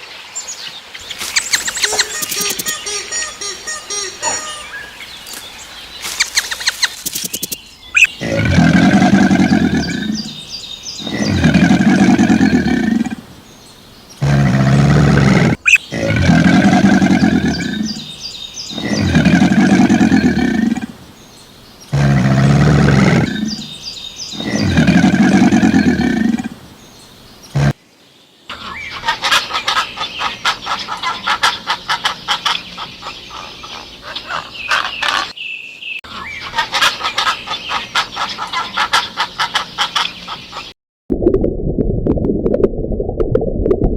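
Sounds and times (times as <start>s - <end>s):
large animal calling: 1.4s - 5.0s, 8.0s - 10.4s, 11.0s - 13.3s, 14.2s - 18.0s, 18.7s - 21.0s, 21.9s - 26.6s.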